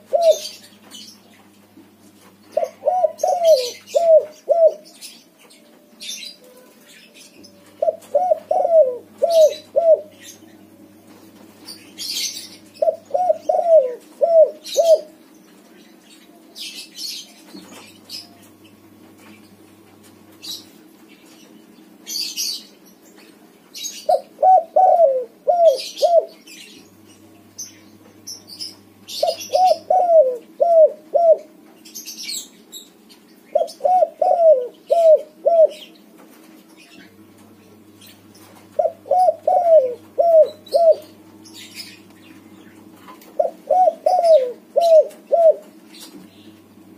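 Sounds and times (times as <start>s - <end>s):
dove cooing: 0.0s - 0.7s, 2.5s - 10.7s, 11.4s - 15.2s, 23.9s - 26.8s, 28.6s - 31.6s, 33.5s - 36.0s, 38.6s - 46.2s
small birds chirping: 0.0s - 46.9s.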